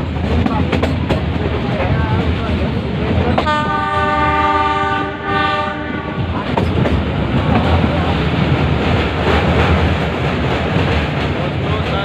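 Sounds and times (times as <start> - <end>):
train rumbling on track: 0.0 - 12.0
train horn blast: 3.4 - 6.3.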